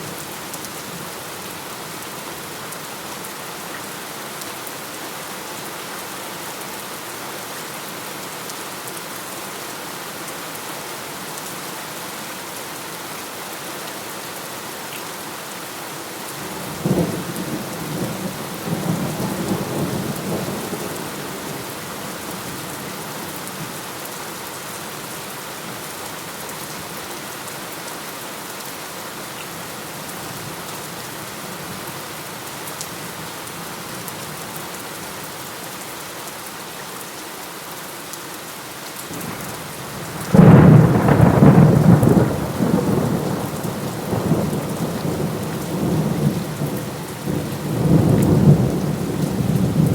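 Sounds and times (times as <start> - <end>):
heavy rain falling: 0.0 - 49.9
thunderclap rumbling: 40.2 - 46.3.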